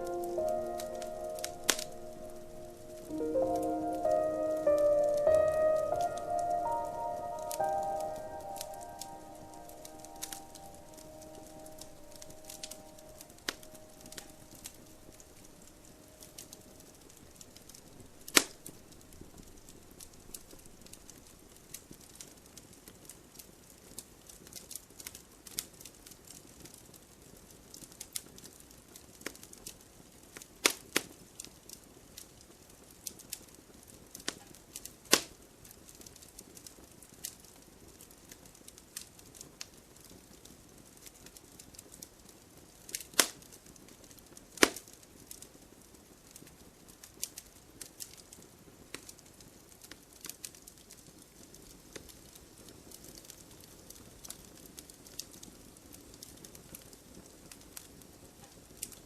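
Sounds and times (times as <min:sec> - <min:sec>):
campfire crackling: 0:00.0 - 0:59.0
burning wood sharp pops: 0:00.2 - 0:03.1, 0:08.5 - 0:32.4, 0:33.0 - 0:45.5.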